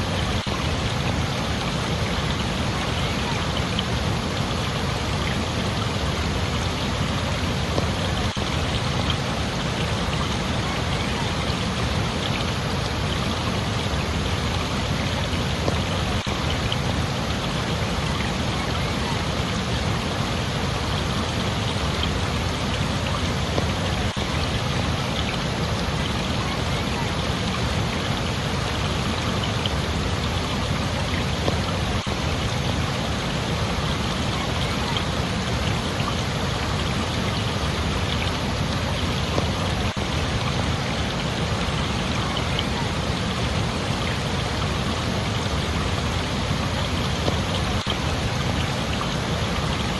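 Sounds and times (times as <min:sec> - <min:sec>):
rushing water: 0:00.0 - 0:49.9.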